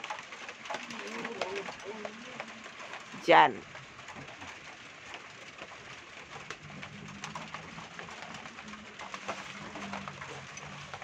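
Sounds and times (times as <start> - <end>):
rain falling: 0.0 - 11.0
dove cooing: 0.7 - 2.8.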